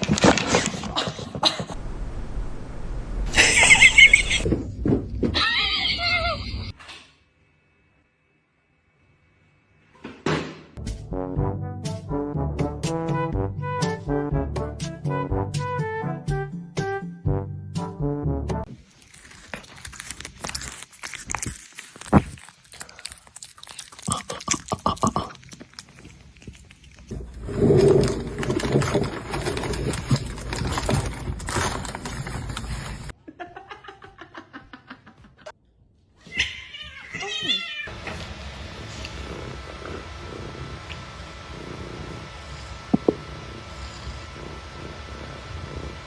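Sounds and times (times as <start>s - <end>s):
crunching clicks and knocks: 27.0s - 33.1s
cats crying: 36.2s - 45.9s.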